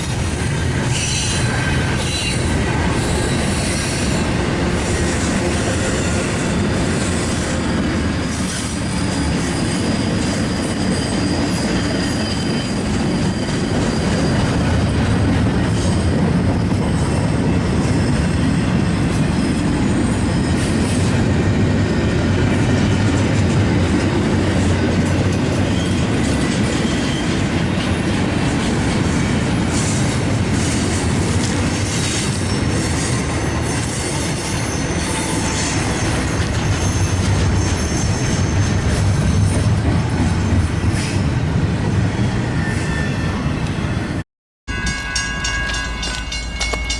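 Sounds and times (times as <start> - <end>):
train wheels rumbling on track: 0.0 - 46.9
high wheel squeal: 8.4 - 14.8, 44.7 - 46.9
rail-joint clatter: 44.7 - 46.9.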